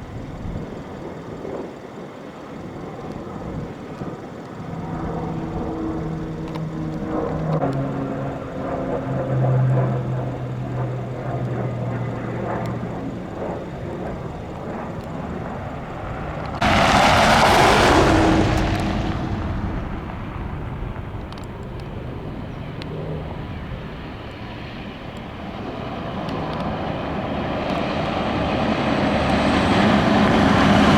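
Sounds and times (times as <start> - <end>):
aircraft engines droning: 0.0 - 30.9
loud rushing noise: 16.6 - 21.2.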